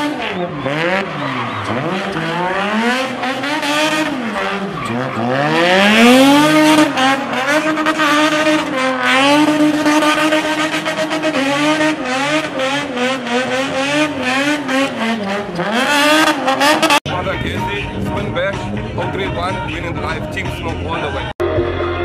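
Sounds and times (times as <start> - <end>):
tyres spinning and screeching: 0.0 - 17.0
car engine revving hard: 0.0 - 22.0.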